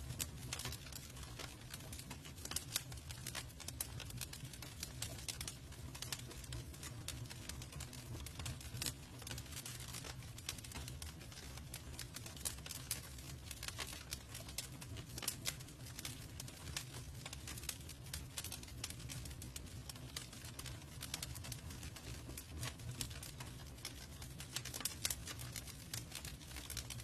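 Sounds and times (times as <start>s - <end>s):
campfire crackling and snapping: 0.0s - 27.0s
fire low rumble: 0.0s - 27.0s.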